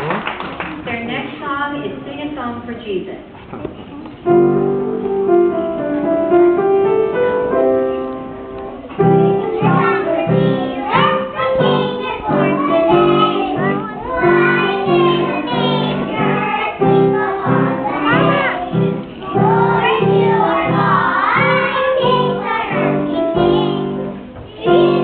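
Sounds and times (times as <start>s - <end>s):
piano accompaniment: 4.2s - 25.0s
children singing: 9.0s - 25.0s.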